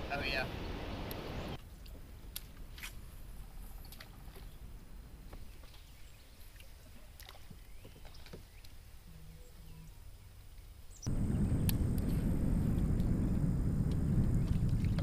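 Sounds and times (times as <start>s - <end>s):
loud low rushing noise: 11.1s - 15.0s
water sounds: 11.1s - 15.0s.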